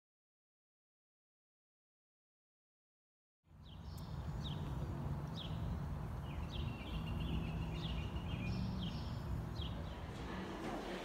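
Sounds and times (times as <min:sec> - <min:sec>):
birds chirping: 0:03.5 - 0:11.0.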